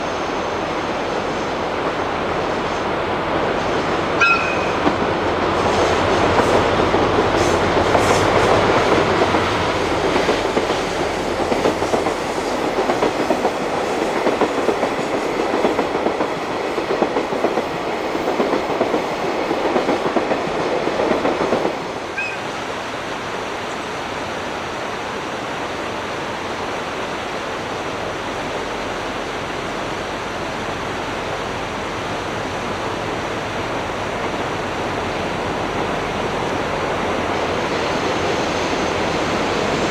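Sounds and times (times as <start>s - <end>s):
train wheels clattering over rail joints: 5.9s - 21.9s.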